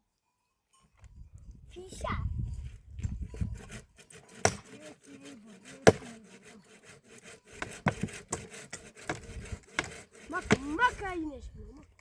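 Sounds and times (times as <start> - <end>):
dry wood scraping and crackling: 2.6 - 12.0
sharp wooden knocks: 3.6 - 11.0.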